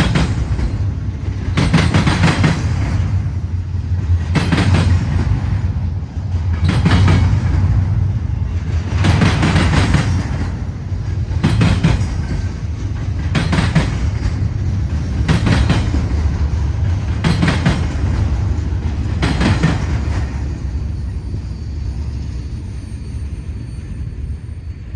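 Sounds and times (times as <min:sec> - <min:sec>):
wheels clattering over rail joints: 0:00.0 - 0:21.1
freight train rumbling past: 0:00.0 - 0:24.9.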